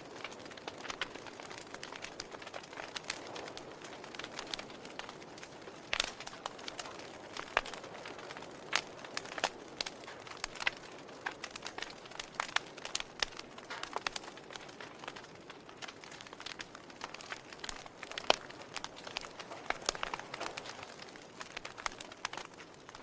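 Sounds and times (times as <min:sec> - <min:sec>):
fire crackling: 0:00.0 - 0:23.0.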